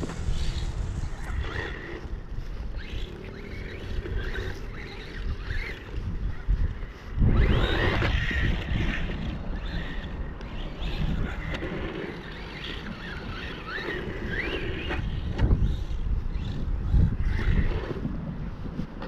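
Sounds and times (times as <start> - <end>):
steady low rumble: 0.0 - 12.4
small electric motor whining: 0.0 - 19.0.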